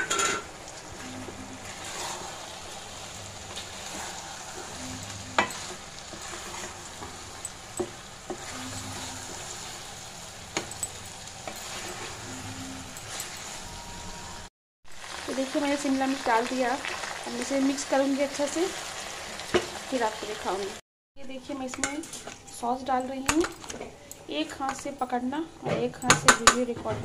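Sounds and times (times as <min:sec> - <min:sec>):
food sizzling in oil: 0:00.0 - 0:20.8.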